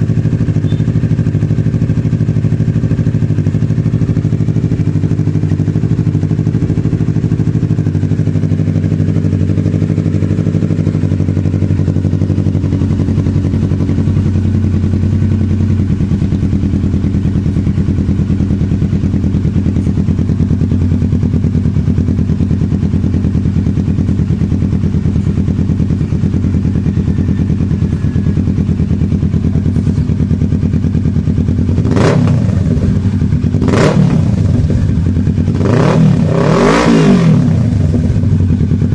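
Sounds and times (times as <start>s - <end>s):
engine throttle blips: 0.0s - 1.4s, 10.0s - 38.9s
motorcycle engine idling: 0.0s - 38.9s.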